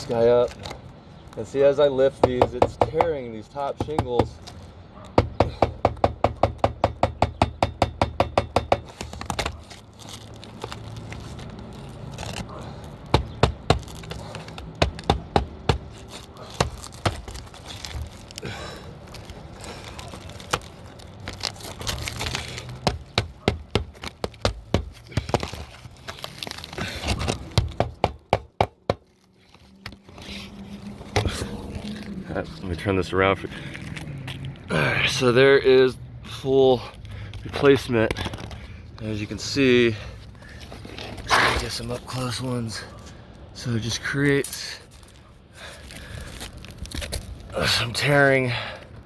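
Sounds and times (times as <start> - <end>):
shingles cracking and crinkling: 0.0 - 32.9, 36.3 - 49.0
hammer tapping: 5.2 - 8.9.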